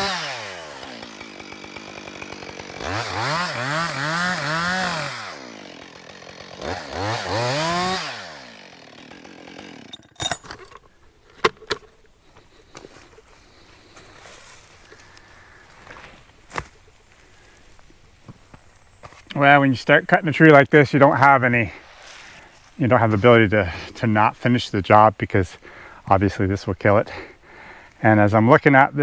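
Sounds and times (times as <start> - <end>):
chainsaw revving and idling: 0.0 - 10.2.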